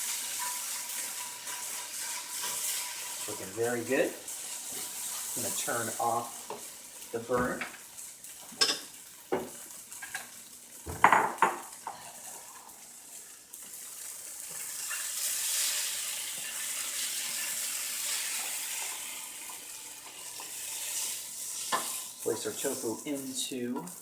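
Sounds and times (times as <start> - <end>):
food sizzling in a pan: 0.0 - 24.0.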